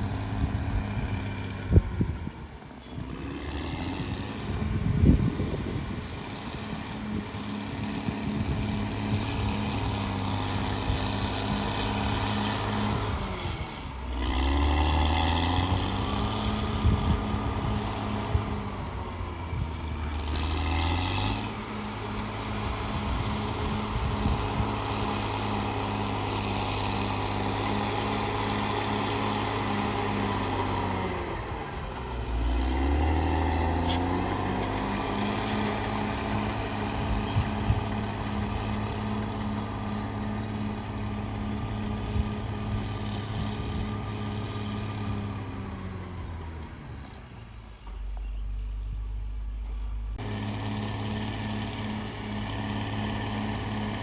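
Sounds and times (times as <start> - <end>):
bulldozer diesel engine working: 0.0 - 54.0.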